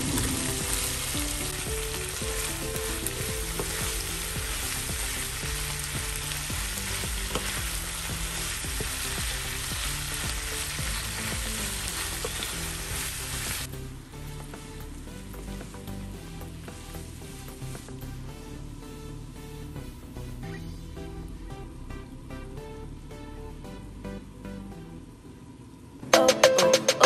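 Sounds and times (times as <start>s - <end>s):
food sizzling in a frying pan: 0.0s - 13.7s
wooden spatula stirring clatter: 5.9s - 9.6s.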